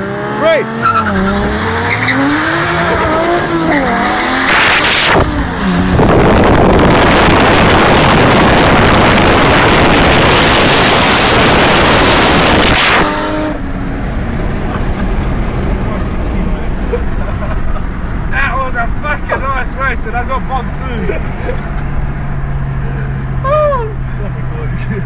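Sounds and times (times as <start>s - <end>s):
car engine accelerating: 0.0s - 25.0s
wind noise: 2.2s - 18.3s.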